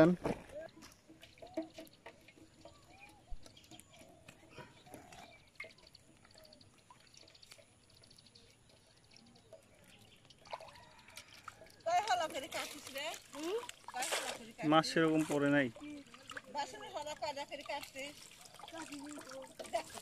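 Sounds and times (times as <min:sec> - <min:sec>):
birds chirping: 0:00.5 - 0:13.2.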